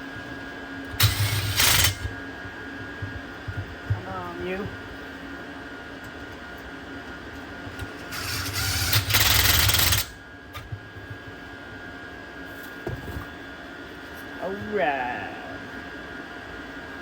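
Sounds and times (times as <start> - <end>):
small electric motor whirring: 0.9 - 2.2, 7.8 - 10.2.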